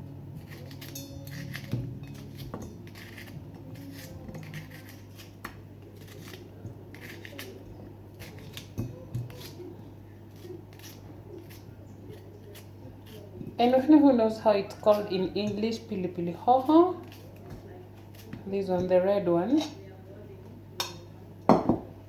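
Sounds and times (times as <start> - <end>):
vegetables scraped and cut: 0.4 - 14.0, 16.4 - 18.8.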